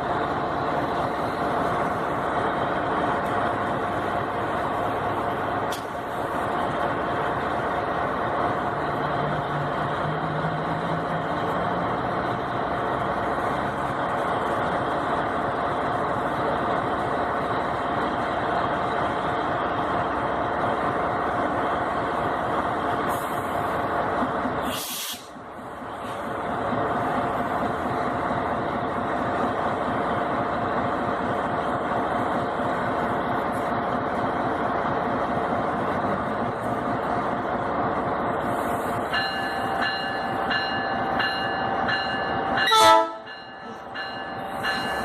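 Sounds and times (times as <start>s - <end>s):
train rolling: 0.0s - 45.0s
brief hiss: 24.6s - 25.3s.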